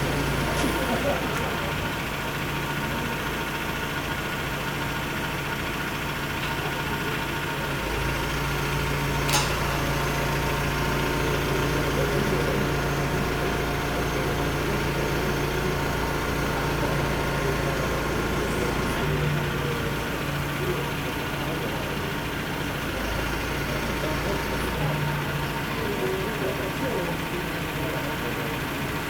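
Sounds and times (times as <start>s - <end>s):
crane engine humming: 0.0s - 29.0s
sharp click: 9.3s - 9.6s.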